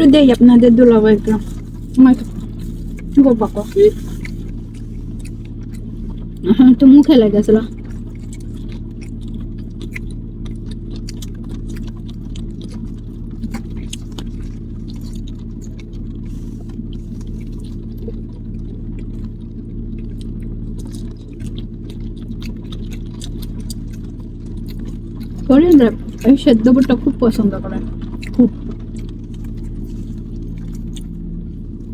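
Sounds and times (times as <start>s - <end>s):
car engine hum: 0.0s - 8.6s.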